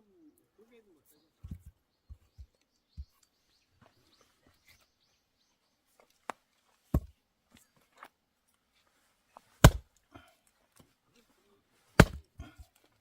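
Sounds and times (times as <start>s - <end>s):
faint birdsong: 0.0s - 13.0s
axe striking log: 6.9s - 7.1s, 9.6s - 9.9s, 12.0s - 12.2s.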